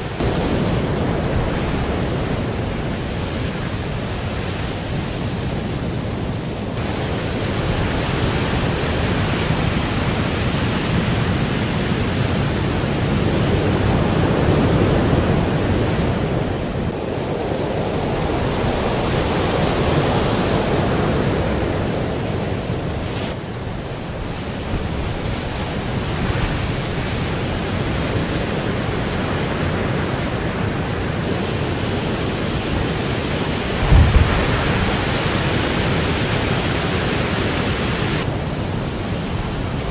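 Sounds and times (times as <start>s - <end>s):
heavy surf roaring: 0.0s - 39.9s
strong wind: 0.0s - 39.9s
wind thump on microphone: 33.8s - 35.5s.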